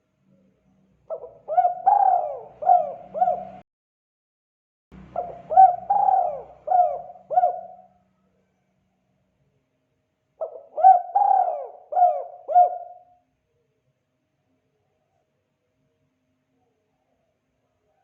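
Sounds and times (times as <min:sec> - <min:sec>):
dove cooing: 0:01.1 - 0:03.6, 0:05.1 - 0:07.9, 0:10.4 - 0:13.2.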